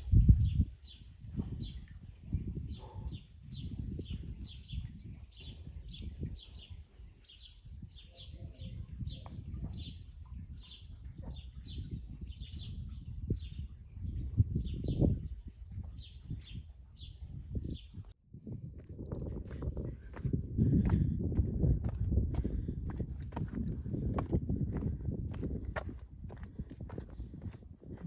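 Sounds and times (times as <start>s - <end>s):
small birds chirping: 0.1s - 18.1s.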